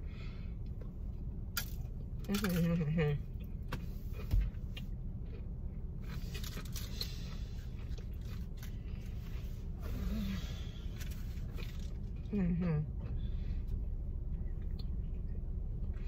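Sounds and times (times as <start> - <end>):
steady low hum: 0.0 - 16.0
crunchy chewing: 3.3 - 12.3.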